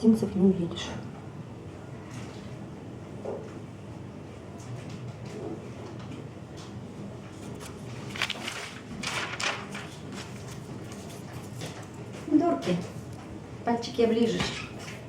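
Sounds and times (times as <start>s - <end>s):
newspaper rustling: 7.4s - 11.8s.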